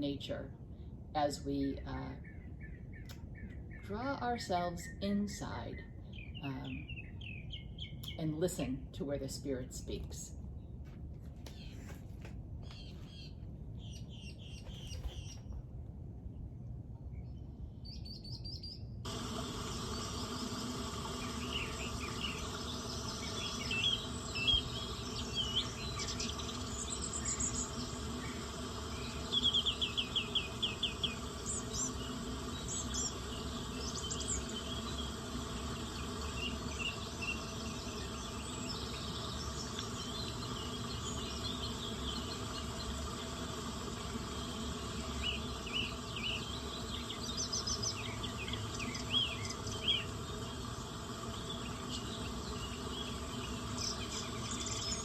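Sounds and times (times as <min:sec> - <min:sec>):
birds calling: 0:11.5 - 0:15.6, 0:18.1 - 0:55.0
insects chirping: 0:19.1 - 0:55.0.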